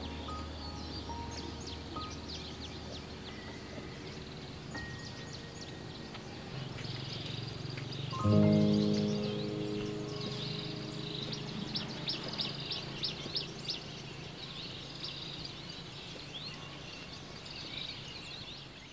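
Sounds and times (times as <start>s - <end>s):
held musical chord: 0.0s - 6.8s, 8.2s - 14.5s
small birds chirping: 0.0s - 18.9s
steady outdoor hiss: 0.0s - 18.9s.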